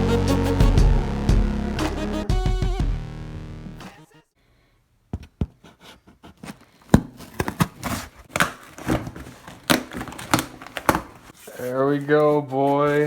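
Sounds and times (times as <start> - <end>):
electronic music: 0.0 - 4.3
packaging rustling: 6.4 - 13.0.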